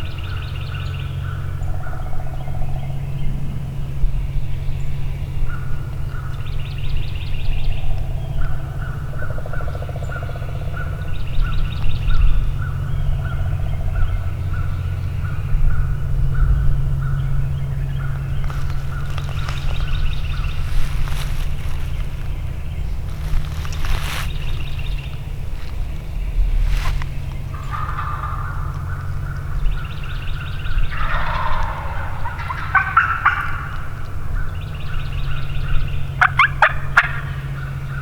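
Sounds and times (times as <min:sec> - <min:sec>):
steady low hum: 0:00.0 - 0:38.0
wild birds calling: 0:00.0 - 0:38.0.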